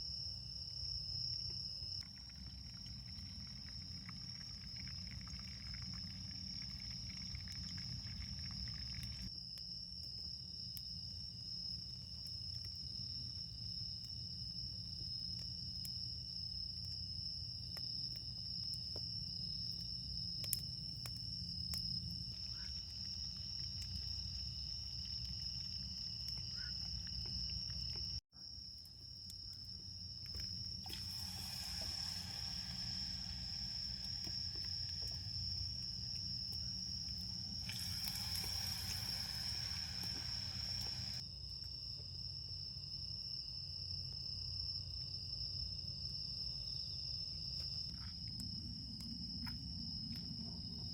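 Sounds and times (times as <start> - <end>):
insects trilling: 0.0 - 50.9
bonfire crackling: 1.9 - 9.4, 19.8 - 28.2, 30.1 - 41.2
rushing hiss: 30.8 - 35.7, 37.6 - 41.2.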